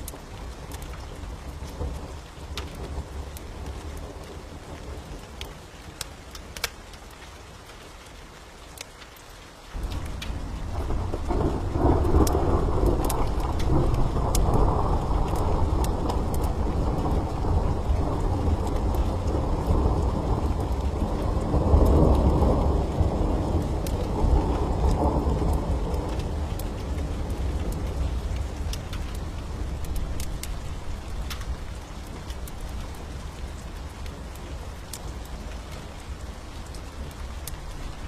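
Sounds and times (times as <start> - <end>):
steady rain: 0.0 - 38.0
thunder rumbling: 9.8 - 35.5.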